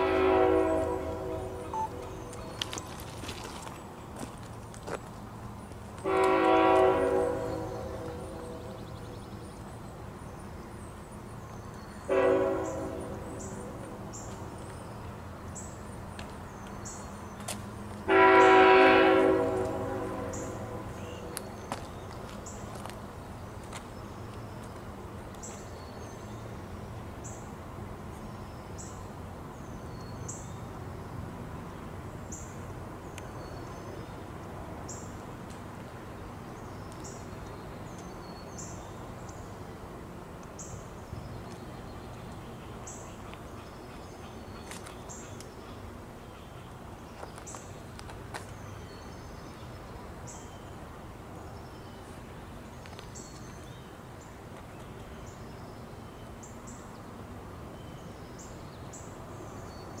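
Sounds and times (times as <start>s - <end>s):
birds chirping: 0.1s - 18.6s.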